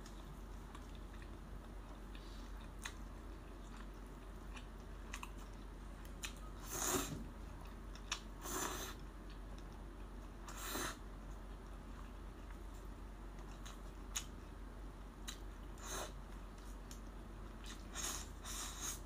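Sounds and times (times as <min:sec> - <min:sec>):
close-up chewing and biting: 0:00.0 - 0:10.4.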